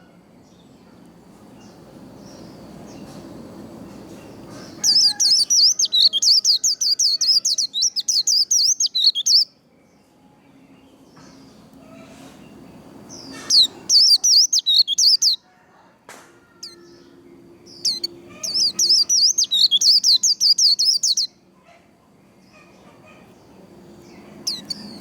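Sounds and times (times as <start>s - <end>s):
bird singing fast warble: 4.7s - 9.5s, 13.2s - 15.4s, 17.7s - 21.4s, 24.0s - 25.0s.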